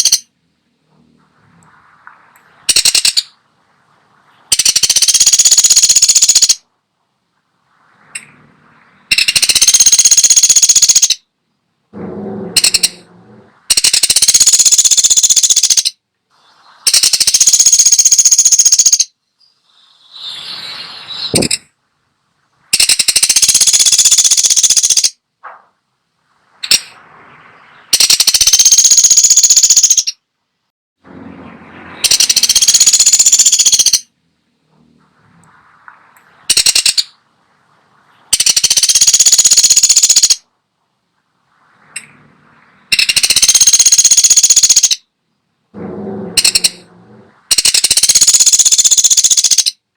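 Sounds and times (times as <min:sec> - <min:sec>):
woodpecker rattling: 0:00.0 - 0:00.3, 0:01.8 - 0:03.4, 0:04.4 - 0:06.6, 0:09.1 - 0:11.2, 0:12.0 - 0:16.0, 0:16.9 - 0:19.2, 0:21.2 - 0:21.7, 0:22.7 - 0:25.6, 0:26.6 - 0:27.0, 0:27.6 - 0:30.2, 0:32.0 - 0:34.1, 0:36.1 - 0:37.2, 0:38.2 - 0:40.4, 0:42.9 - 0:45.0, 0:45.8 - 0:49.8.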